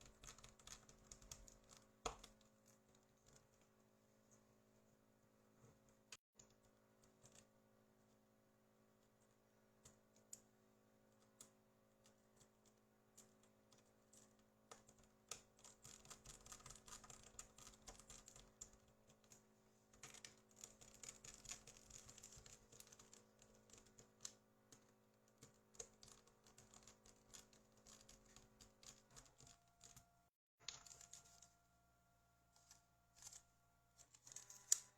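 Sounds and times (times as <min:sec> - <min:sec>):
low electrical hum: 0:17.4 - 0:34.9.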